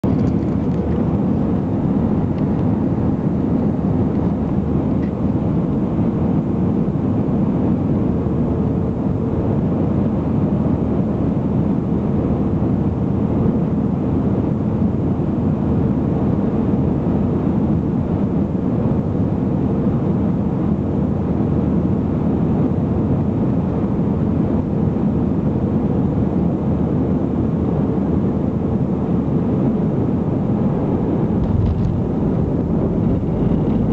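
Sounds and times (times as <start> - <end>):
airplane cabin engine rush: 0.0 - 33.9
faint steady hum: 24.2 - 33.9.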